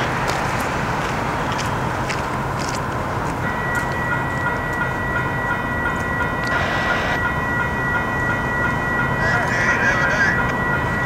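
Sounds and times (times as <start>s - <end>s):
freight train rumble: 0.0s - 11.0s
pulsing high ringing: 3.4s - 11.0s
steady high tone: 3.4s - 11.0s.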